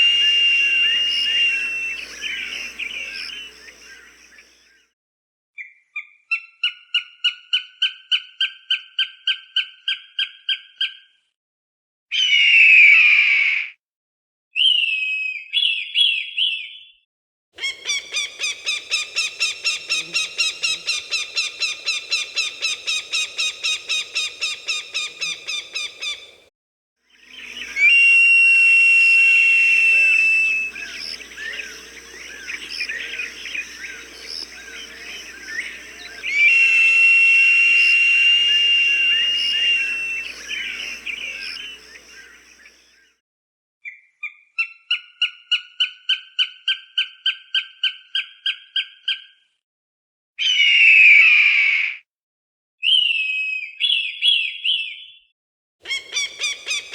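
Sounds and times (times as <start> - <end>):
hawk whistled screams: 0.0 - 4.1, 27.3 - 42.4
small birds chirping: 0.0 - 4.8, 17.6 - 26.4, 27.2 - 28.2, 29.3 - 42.9, 55.9 - 56.9.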